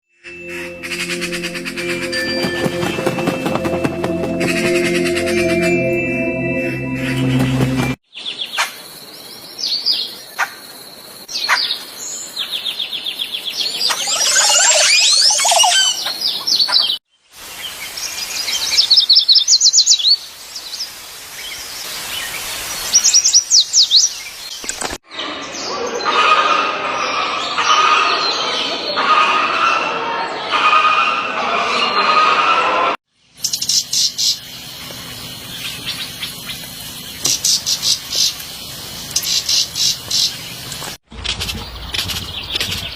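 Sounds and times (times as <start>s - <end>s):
birds singing and calling: 11.2s - 17.0s, 33.3s - 40.9s.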